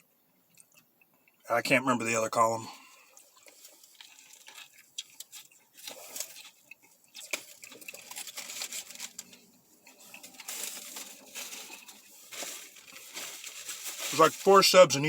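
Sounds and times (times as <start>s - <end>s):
paper wrapping rustling: 7.3s - 15.0s.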